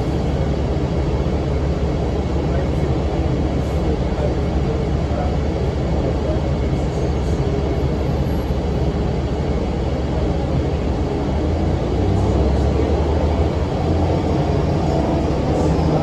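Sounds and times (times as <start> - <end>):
bus diesel engine rumbling: 0.0 - 16.0.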